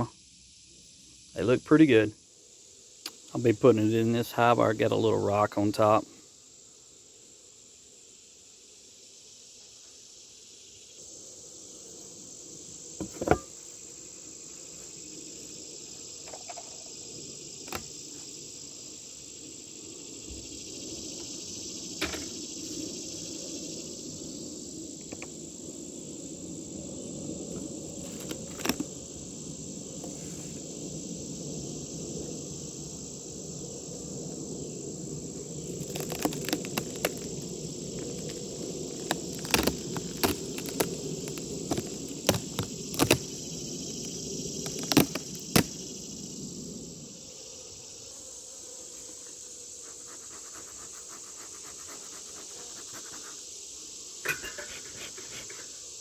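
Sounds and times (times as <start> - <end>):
high insect chorus: 0.0 - 56.0
honeybees humming: 0.0 - 56.0
clicks and knocks of hive equipment: 16.2 - 16.9, 17.6 - 17.9, 22.0 - 22.4, 27.5 - 28.9, 35.6 - 45.8, 54.2 - 55.8.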